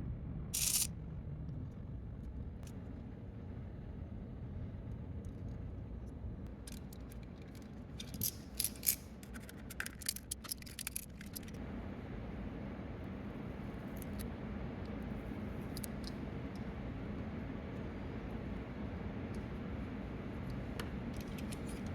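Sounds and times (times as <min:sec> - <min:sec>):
steady low hum: 0:00.0 - 0:21.9
plastic parts clicking and tapping: 0:06.6 - 0:11.6.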